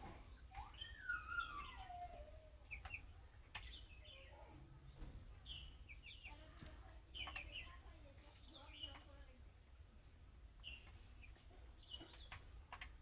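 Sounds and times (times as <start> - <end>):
low falling whistle: 0.7 - 2.4
budgerigars chirping and warbling: 5.0 - 6.5.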